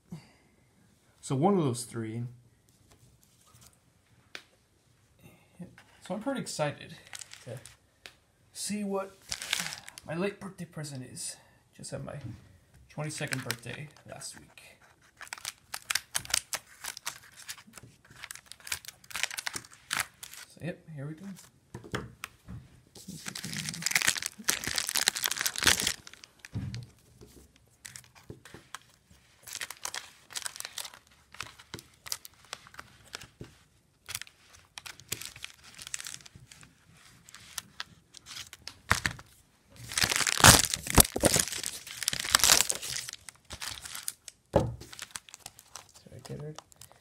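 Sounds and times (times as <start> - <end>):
packaging crinkling and tearing: 7.0 - 7.8, 9.2 - 10.1, 13.2 - 14.0, 14.9 - 20.5, 23.0 - 27.0, 27.8 - 47.0.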